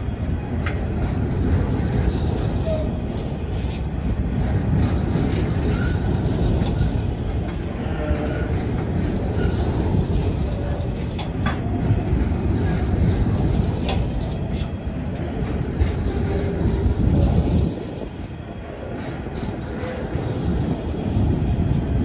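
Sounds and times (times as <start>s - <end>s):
train wheels rumbling on rail: 0.0s - 22.0s
wheel clacks: 0.4s - 22.0s.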